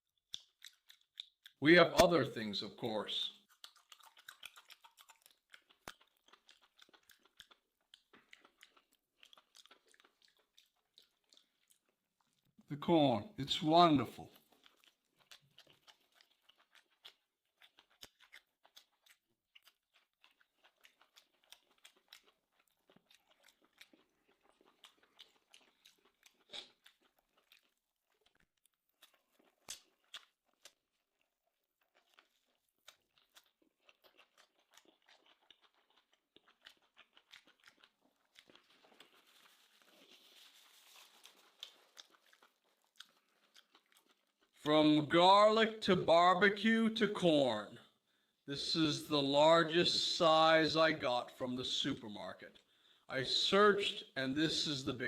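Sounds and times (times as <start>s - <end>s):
person chewing and biting corn: 0.0s - 2.1s, 3.3s - 12.6s, 14.2s - 44.7s.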